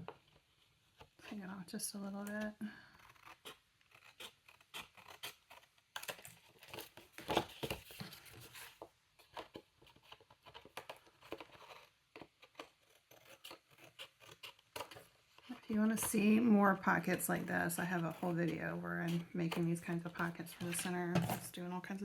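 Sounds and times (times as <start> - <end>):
scissors snipping paper: 3.0 - 7.8, 9.3 - 21.6
paper rustling: 4.2 - 21.6.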